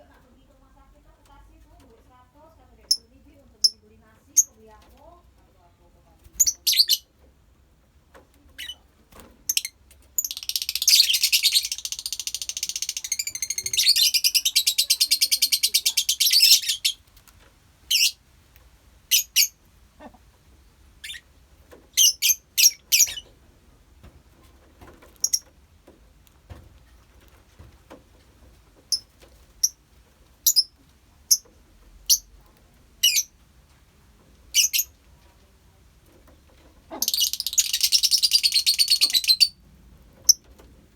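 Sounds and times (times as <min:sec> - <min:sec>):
lovebirds chattering: 0:01.1 - 0:05.1, 0:06.0 - 0:07.2, 0:08.4 - 0:17.0, 0:17.8 - 0:18.2, 0:19.0 - 0:20.3, 0:21.0 - 0:21.3, 0:21.9 - 0:23.4, 0:25.1 - 0:25.6, 0:28.8 - 0:29.8, 0:30.4 - 0:32.4, 0:33.0 - 0:33.4, 0:34.4 - 0:35.1, 0:36.7 - 0:39.6, 0:40.2 - 0:40.5
lovebirds chirping: 0:02.7 - 0:04.8, 0:06.3 - 0:07.1, 0:08.5 - 0:17.0, 0:17.8 - 0:18.2, 0:19.0 - 0:20.2, 0:21.0 - 0:23.4, 0:25.1 - 0:25.6, 0:28.8 - 0:29.8, 0:30.4 - 0:32.3, 0:33.0 - 0:33.4, 0:34.5 - 0:35.0, 0:36.8 - 0:39.6, 0:40.2 - 0:40.5.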